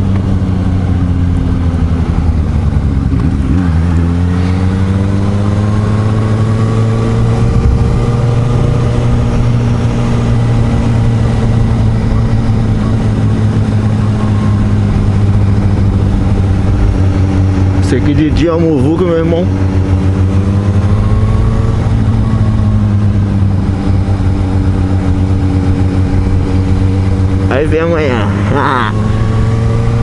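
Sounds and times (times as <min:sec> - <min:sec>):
motorcycle engine running: 0:00.0 - 0:30.0
second engine: 0:00.0 - 0:30.0
wind rushing: 0:06.2 - 0:10.6.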